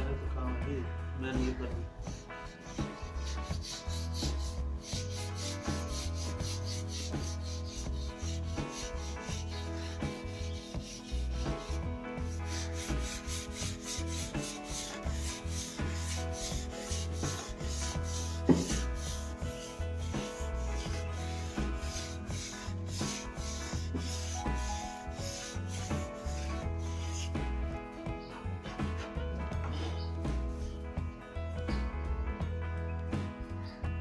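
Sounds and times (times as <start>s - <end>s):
background music: 0.0s - 34.0s
sandpaper rubbing wood: 1.4s - 27.7s.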